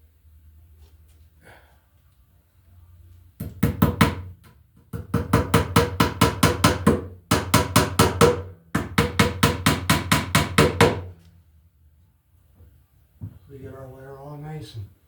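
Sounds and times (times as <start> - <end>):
hammer striking nail into wood: 3.4 - 11.2.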